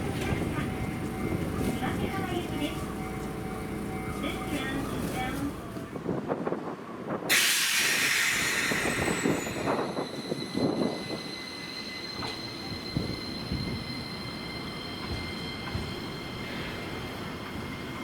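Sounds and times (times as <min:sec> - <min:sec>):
tram passing: 0:00.0 - 0:18.0
loud hiss: 0:07.3 - 0:09.2
tram wheels squealing: 0:07.3 - 0:18.0.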